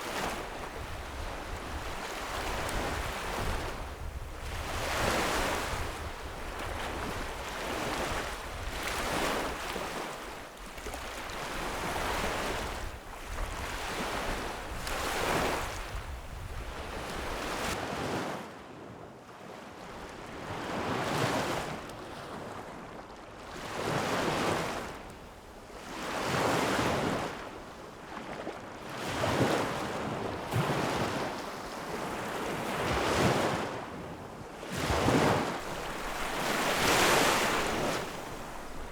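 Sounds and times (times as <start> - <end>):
wind rumble on microphone: 0.0 - 10.0, 10.7 - 17.8
lake waves washing onto shore: 0.0 - 17.8, 34.6 - 38.9.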